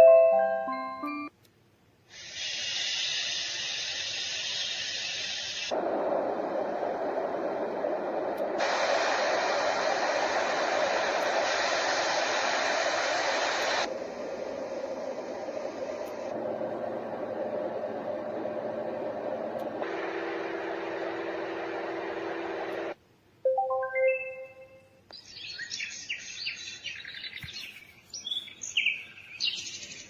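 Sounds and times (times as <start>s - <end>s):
tinkling melody: 0.0s - 1.3s, 23.5s - 24.8s
white noise machine hiss: 1.6s - 23.4s.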